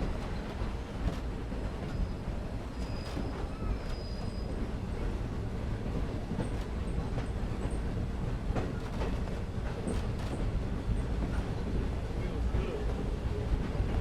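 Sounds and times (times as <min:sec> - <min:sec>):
train rumbling along track: 0:00.0 - 0:14.0.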